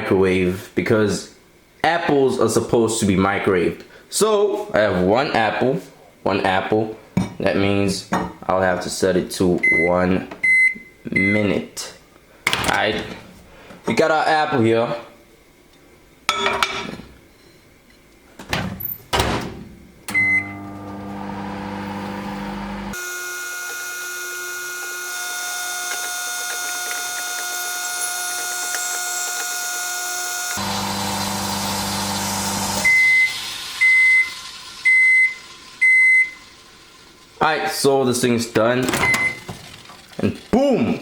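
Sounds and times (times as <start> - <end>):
microwave humming: 19.2 - 37.4, 38.8 - 40.3.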